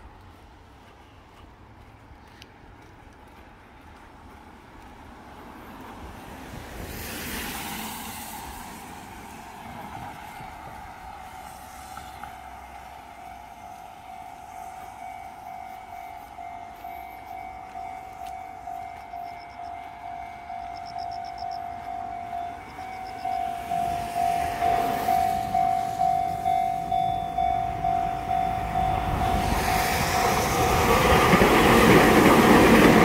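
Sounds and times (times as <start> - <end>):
train passing: 0.0 - 33.0
pulsing ringing tone: 12.4 - 30.6.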